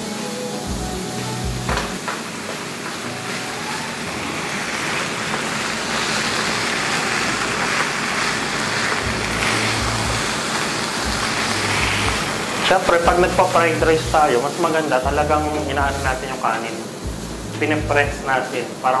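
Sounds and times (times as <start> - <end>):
rice sizzling in a frying pan: 0.0 - 19.0
low bumps: 9.0 - 10.4, 11.0 - 14.3.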